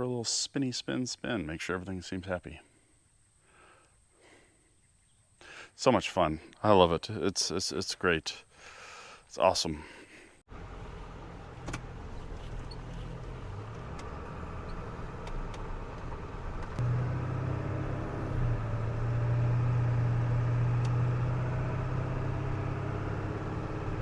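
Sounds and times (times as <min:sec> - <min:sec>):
diesel pickup engine hum: 0:10.5 - 0:24.0
road noise: 0:10.5 - 0:24.0.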